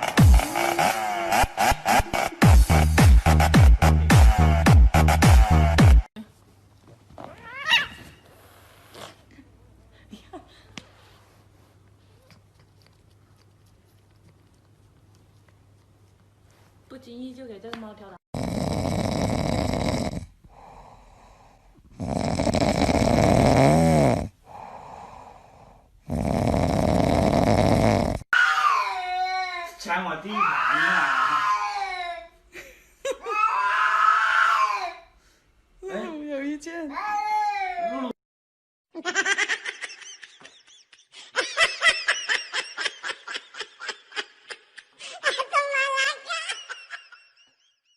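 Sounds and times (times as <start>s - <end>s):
person snoring: 0.0s - 6.0s, 18.4s - 28.3s
person laughing: 39.0s - 47.5s.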